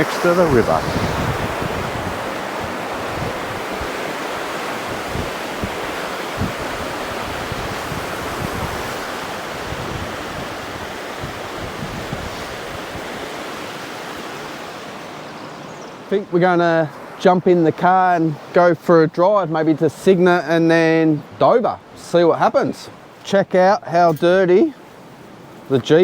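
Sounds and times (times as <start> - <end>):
wind buffeting microphone: 0.0 - 15.9
river water rushing: 0.0 - 25.6.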